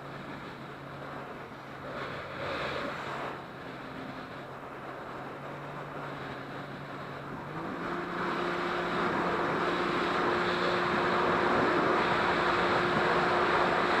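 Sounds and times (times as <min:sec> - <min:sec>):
jet ski engine running: 0:00.0 - 0:14.0
rushing water noise: 0:05.5 - 0:14.0.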